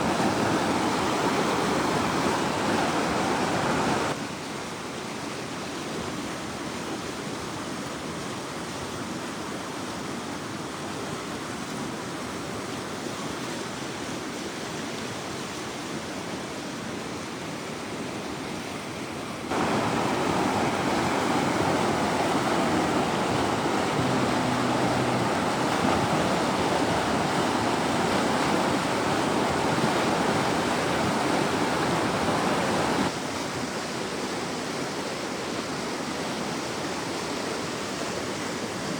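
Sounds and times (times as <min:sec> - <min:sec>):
floodwater rushing: 0:00.0 - 0:04.2, 0:19.4 - 0:38.9.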